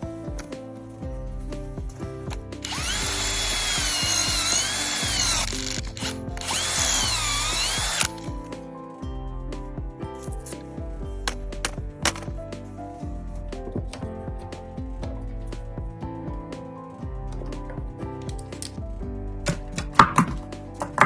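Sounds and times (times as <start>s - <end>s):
background music: 0.0s - 21.0s
power tool whining: 2.7s - 8.1s.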